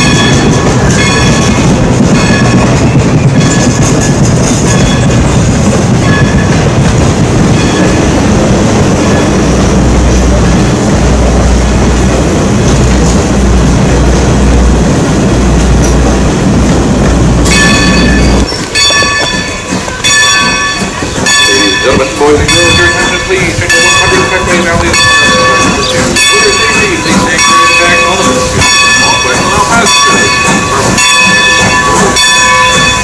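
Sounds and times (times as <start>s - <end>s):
wheel clatter and squeal: 0.0s - 8.2s, 17.4s - 33.0s
rumble of train wheels on rail: 0.0s - 33.0s.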